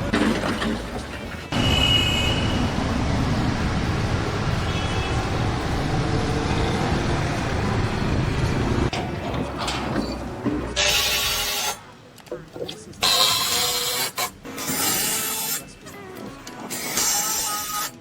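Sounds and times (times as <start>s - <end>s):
motor vehicle rumble: 0.0s - 10.4s.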